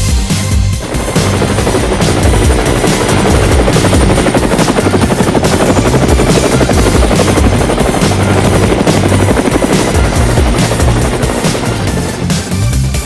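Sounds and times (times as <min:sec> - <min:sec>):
electronic music with bass: 0:00.0 - 0:13.0
helicopter rotor chopping: 0:00.1 - 0:13.0.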